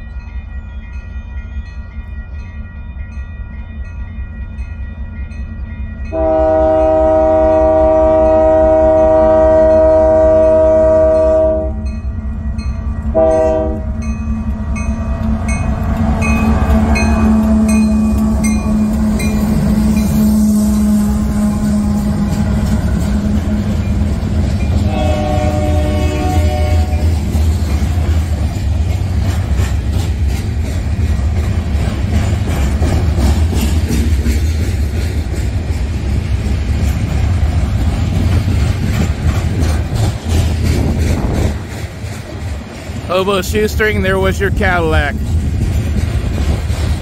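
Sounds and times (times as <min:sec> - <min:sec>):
crossing bell ticking: 0:00.0 - 0:07.1, 0:09.7 - 0:20.8
locomotive engines rumbling: 0:04.5 - 0:47.0
locomotive air horn blasts: 0:06.1 - 0:11.9, 0:13.1 - 0:14.0, 0:17.0 - 0:23.6, 0:24.8 - 0:27.0
train wheels clattering: 0:12.6 - 0:47.0.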